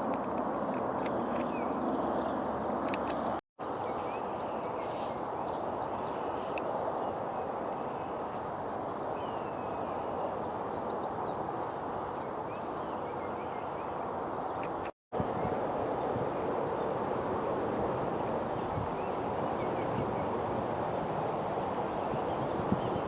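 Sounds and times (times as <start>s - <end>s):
steady outdoor rushing noise: 0.0s - 23.0s
songbirds chirping: 0.1s - 16.9s.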